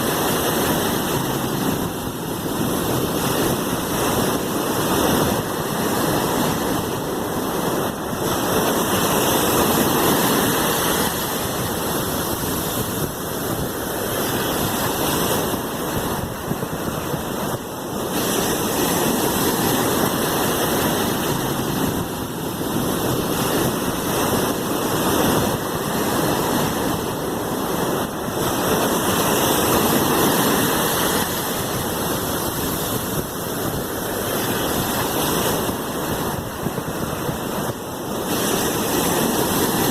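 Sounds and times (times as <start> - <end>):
sea waves washing in: 0.0 - 39.9.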